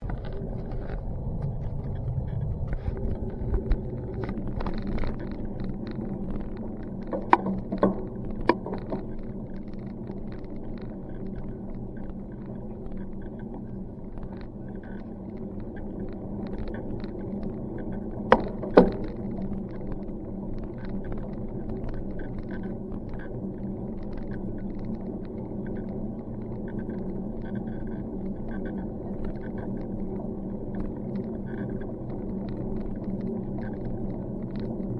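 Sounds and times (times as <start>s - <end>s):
wind on microphone: 0.0s - 12.0s
bicycle ride rumble: 0.0s - 34.9s
bicycle knocks and rattles: 7.0s - 9.3s, 18.3s - 19.6s.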